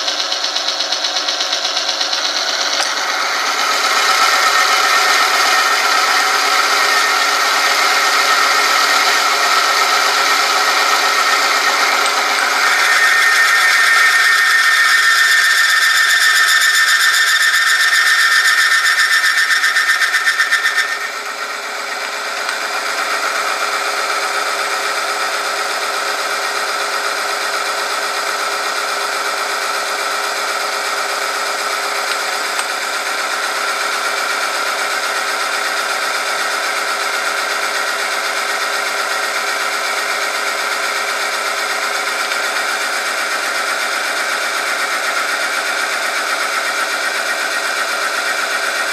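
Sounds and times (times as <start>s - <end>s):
steel roller grinding metallic whine: 0.0s - 48.9s
high squeal: 3.0s - 23.9s.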